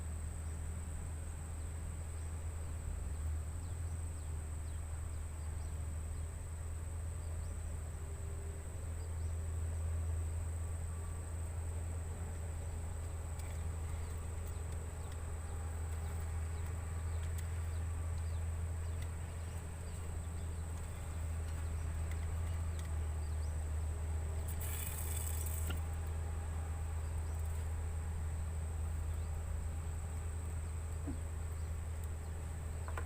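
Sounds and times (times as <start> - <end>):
insects droning: 0.0 - 33.0
short noisy burst: 24.5 - 25.8.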